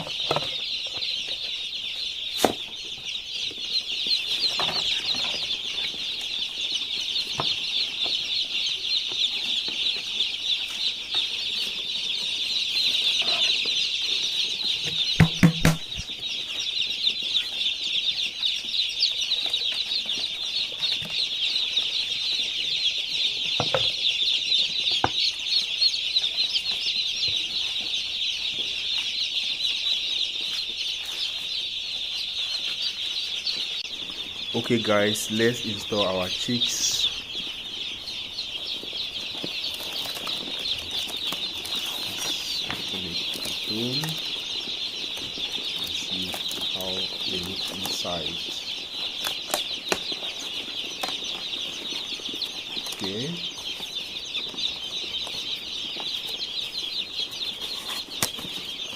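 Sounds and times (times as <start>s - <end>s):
chicks peeping: 0.0s - 58.9s
sharp knocks: 14.9s - 16.1s.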